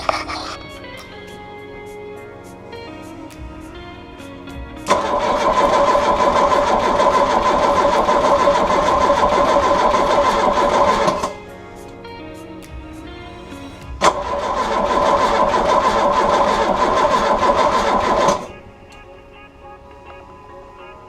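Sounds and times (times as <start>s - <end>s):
background music: 0.0s - 21.0s
car engine cranking with starter: 4.9s - 11.4s, 14.0s - 18.5s.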